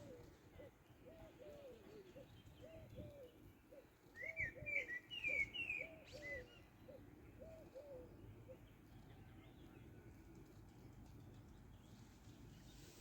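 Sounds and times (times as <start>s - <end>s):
dove cooing: 0.0s - 8.7s
songbird chirping: 0.0s - 13.0s.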